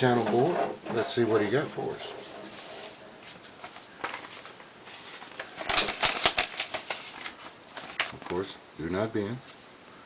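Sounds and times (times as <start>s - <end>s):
paper envelope crinkling: 1.3s - 8.5s
rapid paper crackles: 1.3s - 8.5s.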